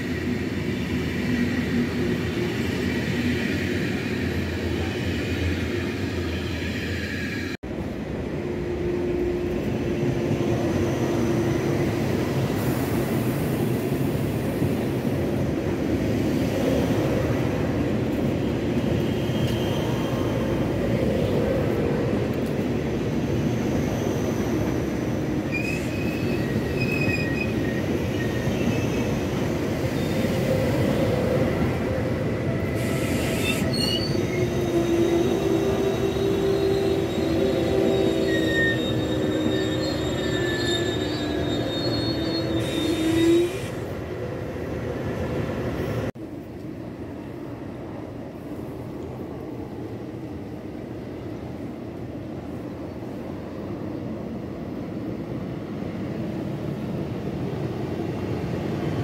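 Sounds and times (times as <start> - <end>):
train wheels rumbling on rail: 0.0 - 59.0
wheels squealing: 25.5 - 29.2, 32.8 - 43.8.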